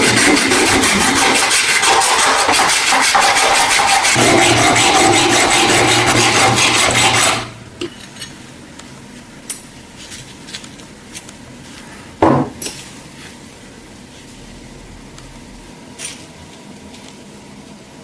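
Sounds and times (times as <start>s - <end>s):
power tool scraping metal: 0.0s - 7.6s
loud knock: 12.2s - 12.6s.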